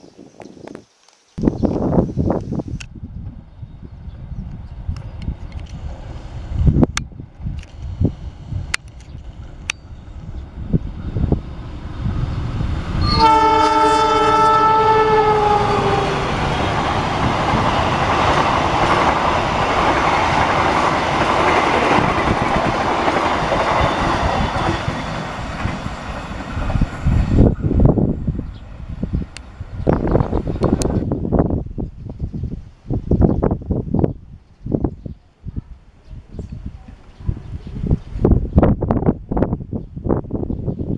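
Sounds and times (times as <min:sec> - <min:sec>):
train horn blast: 0:13.0 - 0:16.7
train wheels clattering on rails: 0:15.9 - 0:27.9.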